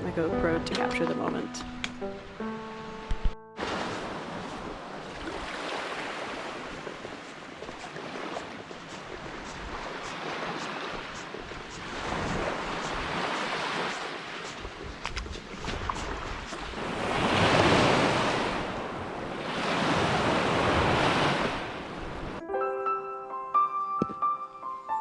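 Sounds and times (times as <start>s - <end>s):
waves washing against rocky shore: 3.6s - 22.2s
wind buffeting microphone: 6.3s - 22.4s.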